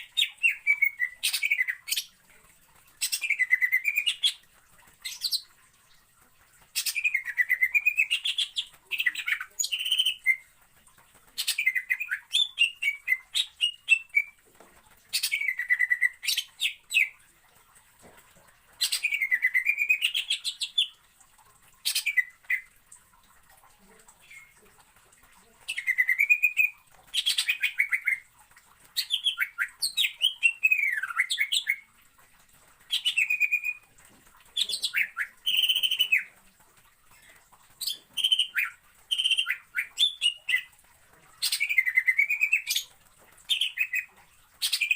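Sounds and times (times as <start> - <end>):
bird chirping and trilling: 0.0 - 2.1, 3.0 - 4.4, 6.8 - 10.5, 11.4 - 14.4, 15.1 - 17.2, 18.8 - 20.9, 21.8 - 22.7, 25.7 - 28.2, 29.0 - 31.8, 32.9 - 33.8, 34.6 - 36.3, 37.8 - 40.7, 41.4 - 42.9, 43.5 - 44.9.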